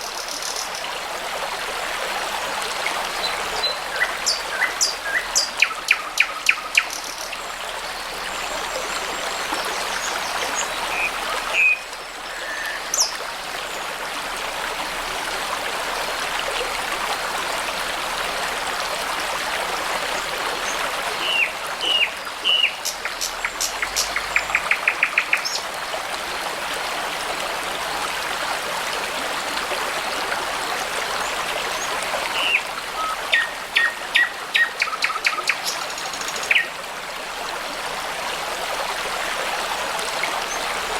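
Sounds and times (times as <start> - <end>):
brook water rushing: 0.0 - 40.9
songbirds calling: 2.7 - 13.2, 20.6 - 25.7, 31.1 - 36.8.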